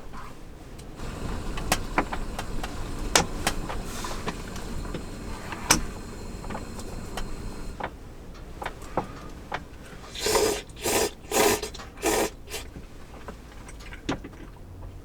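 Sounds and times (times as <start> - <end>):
steady low rumble: 1.0 - 7.8.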